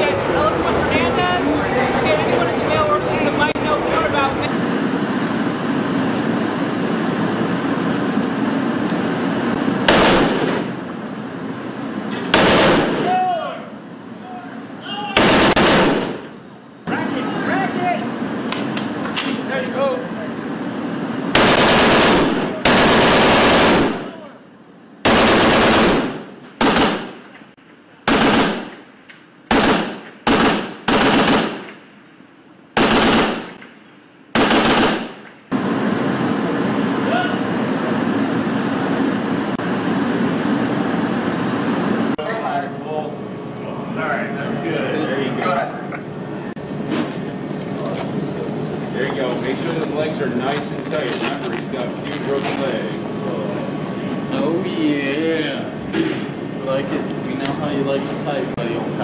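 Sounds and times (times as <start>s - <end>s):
wind: 0.0s - 59.0s
machine gun fire: 9.8s - 10.8s, 12.3s - 13.2s, 15.2s - 16.3s, 21.3s - 24.2s, 25.0s - 27.3s, 28.0s - 28.9s, 29.5s - 31.8s, 32.8s - 33.6s, 34.3s - 35.3s.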